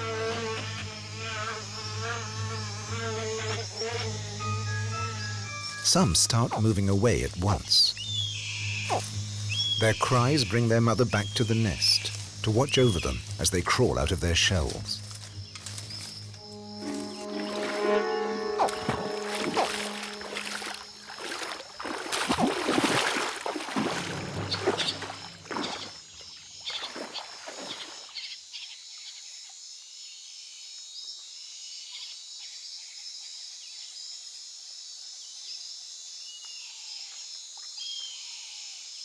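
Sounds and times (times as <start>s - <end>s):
high insect chorus: 0.0s - 28.3s
low music tones: 4.2s - 21.6s
faint chirps: 5.6s - 21.6s, 23.0s - 26.0s
rustling and scratching: 14.6s - 17.2s.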